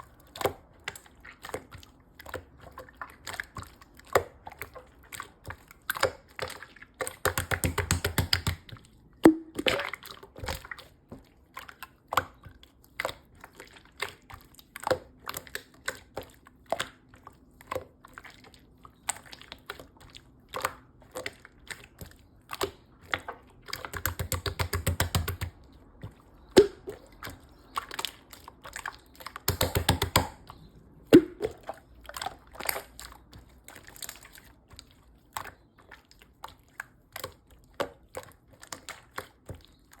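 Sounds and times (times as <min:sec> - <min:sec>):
slime squishing with sticky pops: 0:00.0 - 0:40.0.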